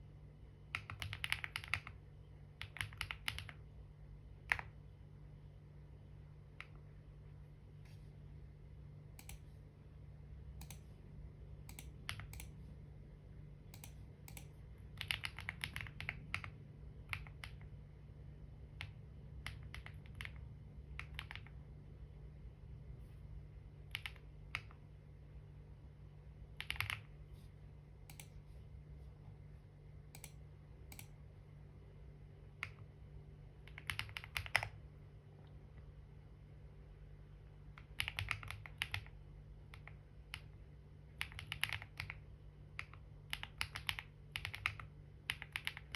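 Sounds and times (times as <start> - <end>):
steady low hum: 0.0 - 45.9
typing on computer keyboard: 0.7 - 2.0, 2.6 - 3.6, 4.4 - 4.8, 11.6 - 12.5, 13.7 - 17.7, 18.7 - 21.6, 23.9 - 24.8, 26.6 - 27.1, 33.6 - 34.8, 37.7 - 40.5, 41.1 - 45.9.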